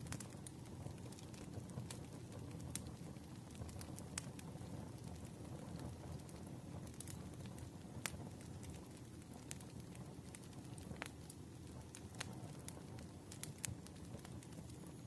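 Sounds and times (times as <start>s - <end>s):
campfire flames rumbling: 0.0s - 15.0s
firewood crackling and popping: 0.0s - 15.0s.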